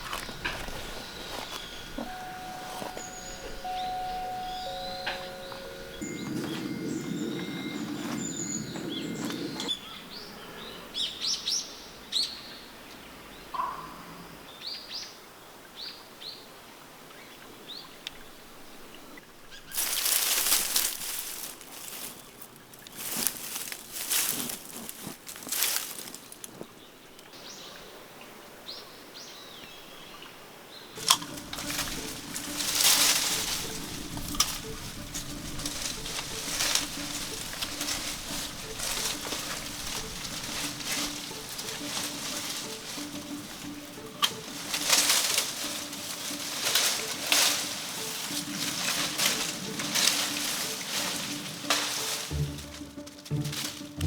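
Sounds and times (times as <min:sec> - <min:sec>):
small birds chirping: 0:00.0 - 0:15.1, 0:29.2 - 0:50.6.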